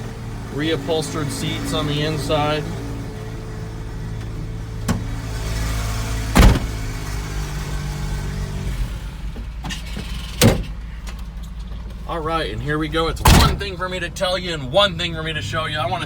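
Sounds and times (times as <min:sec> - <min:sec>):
truck engine idling: 0:00.0 - 0:16.0
sharp knocks: 0:06.4 - 0:07.0.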